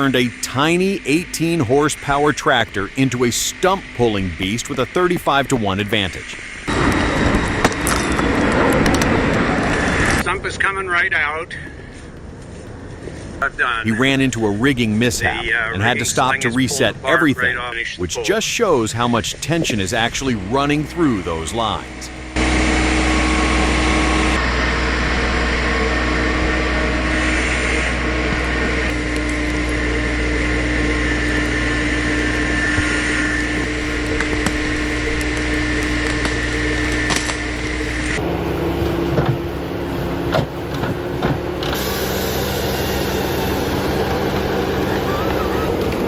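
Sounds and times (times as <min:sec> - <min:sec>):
different engine with sharp knocks: 0:00.0 - 0:10.2, 0:19.4 - 0:46.0
engine running steadily: 0:00.0 - 0:46.0.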